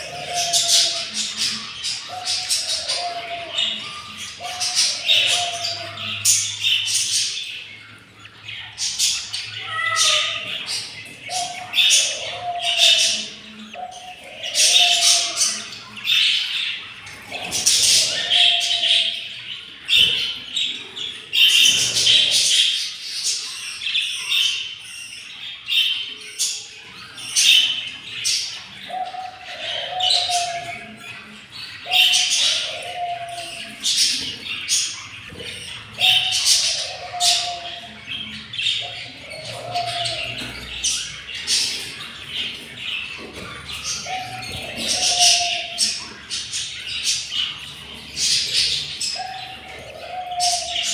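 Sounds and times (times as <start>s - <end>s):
budgerigars squawking: 0.0s - 50.9s.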